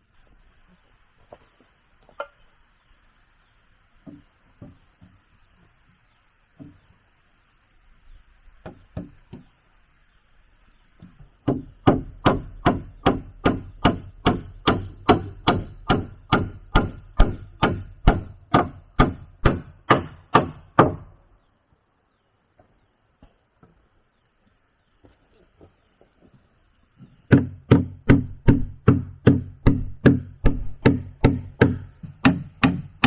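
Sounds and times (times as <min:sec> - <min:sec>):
faint knocks: 0:04.0 - 0:07.0
tool striking wood: 0:11.4 - 0:21.1, 0:27.3 - 0:33.0.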